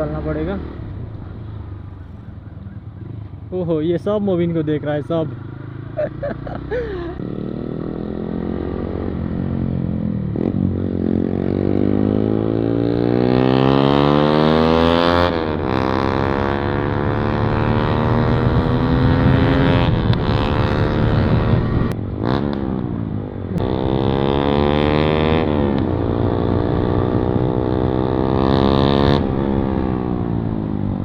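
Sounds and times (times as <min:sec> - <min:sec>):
motorcycle engine accelerating: 0:04.5 - 0:31.0.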